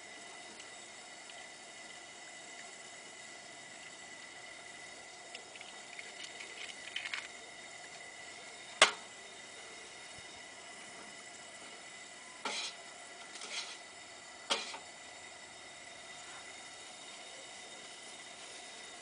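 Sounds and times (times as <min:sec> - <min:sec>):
light clicks and taps on a pan: 0:08.8 - 0:09.0.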